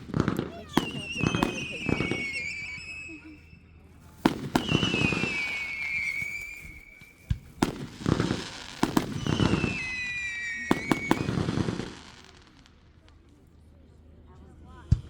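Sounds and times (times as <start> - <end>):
fireworks bangs and crackling: 0.0 - 13.2
whistle sliding down in pitch: 0.8 - 3.6, 4.6 - 7.3.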